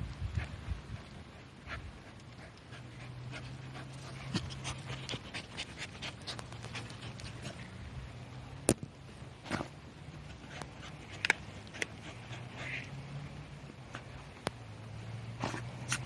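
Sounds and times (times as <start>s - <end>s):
paws scratching dirt: 0.3s - 7.8s, 9.2s - 12.9s, 15.4s - 16.0s
dog panting: 0.4s - 7.8s, 10.2s - 12.9s.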